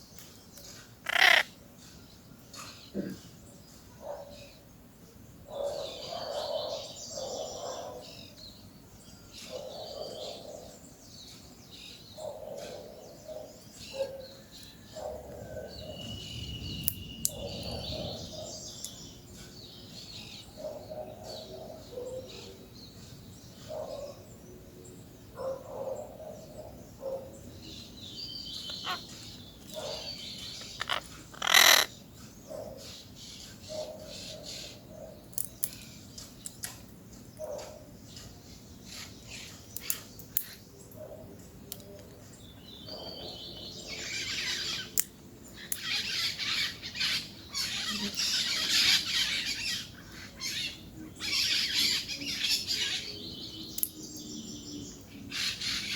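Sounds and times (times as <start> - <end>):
parakeets calling: 1.0 - 1.6, 28.6 - 32.0, 43.9 - 45.0, 45.6 - 53.2, 55.3 - 55.9.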